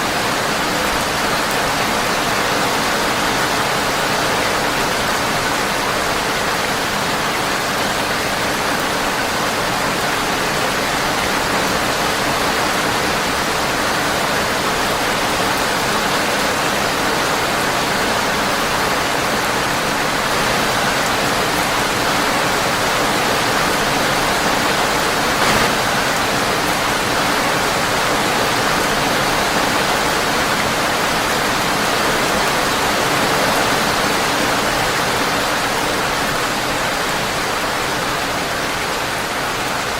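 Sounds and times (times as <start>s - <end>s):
sharp pop: 25.4s - 26.0s.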